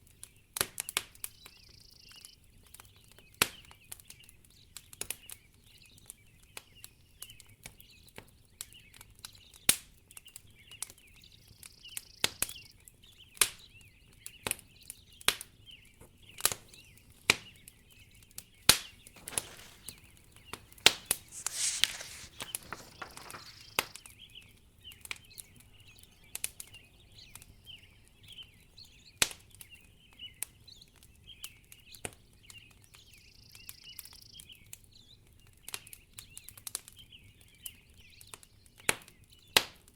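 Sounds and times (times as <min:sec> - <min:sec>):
wood fire crackling: 0:18.7 - 0:24.0.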